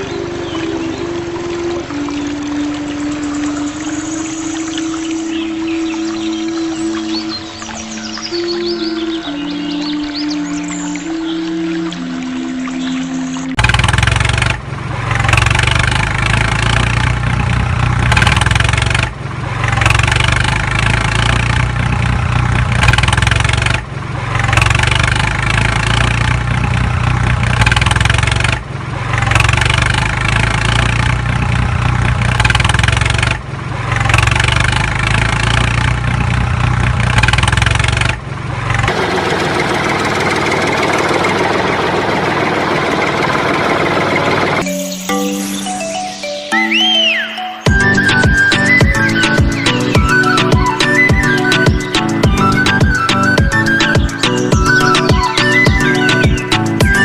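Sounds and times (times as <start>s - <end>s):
engine running: 0.0s - 46.5s, 47.1s - 57.0s.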